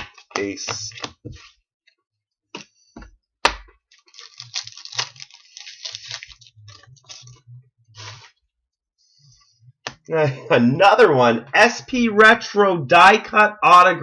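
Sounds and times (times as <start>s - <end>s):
foil wrapper crinkling and tearing: 3.9s - 7.4s.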